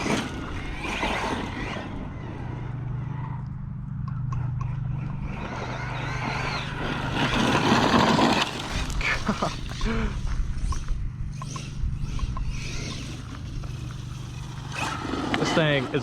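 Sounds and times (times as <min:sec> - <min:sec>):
rc truck driving over rough ground: 0:00.0 - 0:16.0.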